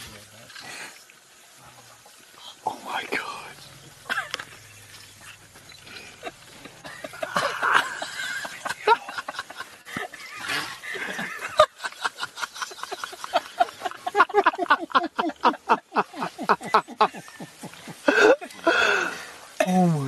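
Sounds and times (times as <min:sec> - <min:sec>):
people laughing: 0:05.9 - 0:19.3.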